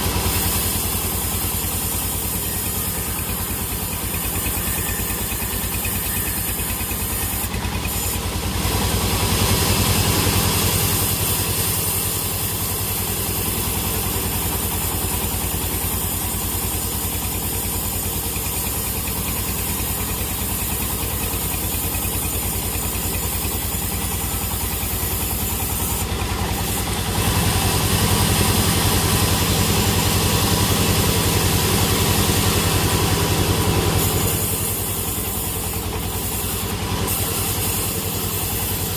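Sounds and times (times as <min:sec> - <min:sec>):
sawmill machinery droning: 0:00.0 - 0:38.9.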